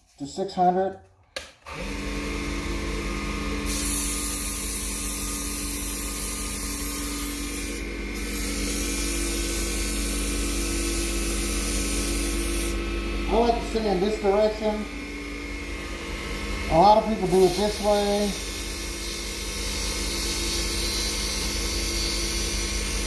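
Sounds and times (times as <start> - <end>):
electric sander motor hum: 1.8 - 23.0
sandpaper hissing on wood: 6.8 - 10.1, 11.4 - 12.8.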